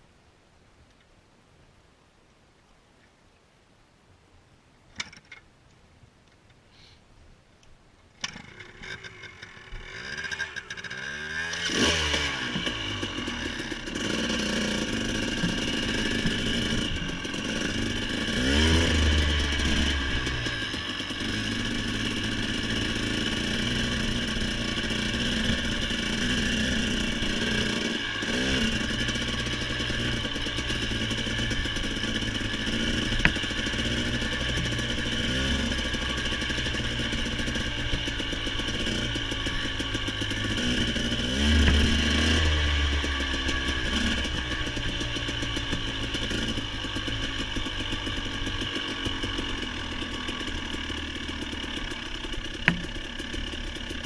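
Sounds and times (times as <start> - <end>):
motorcycle engine running: 8.3 - 54.0.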